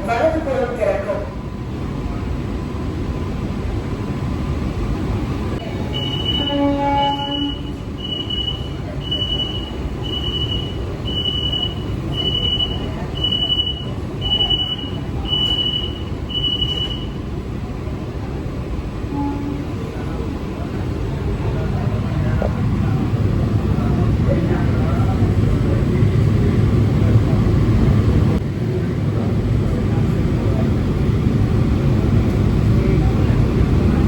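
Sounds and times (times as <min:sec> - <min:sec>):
electric train rumble: 0:00.0 - 0:34.0
high electronic beep: 0:06.0 - 0:06.5, 0:07.4 - 0:17.2.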